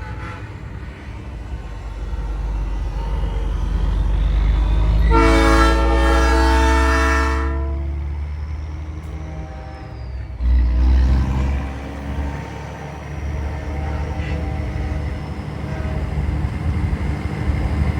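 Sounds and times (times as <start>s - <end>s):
diesel truck engine drone: 0.0s - 17.9s
train horn chord blast: 5.0s - 8.2s, 9.3s - 10.0s.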